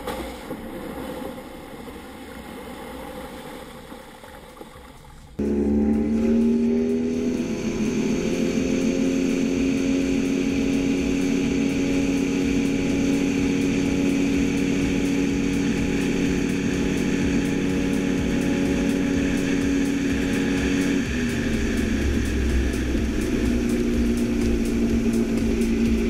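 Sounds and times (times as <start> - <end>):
motorboat engine running hard: 5.4 - 26.0.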